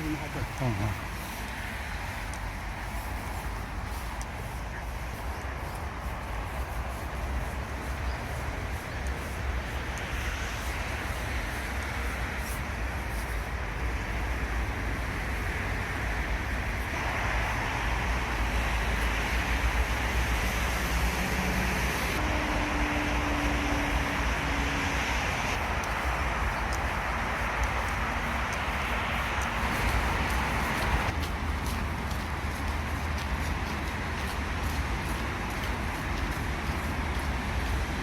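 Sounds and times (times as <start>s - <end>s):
road traffic roar: 0.0s - 38.0s.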